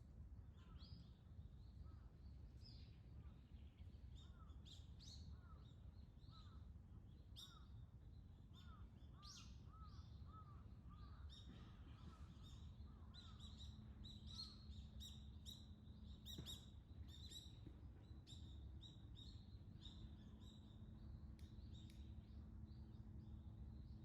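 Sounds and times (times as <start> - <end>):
low steady hum: 0.0 - 24.0
small birds chirping: 8.6 - 24.0.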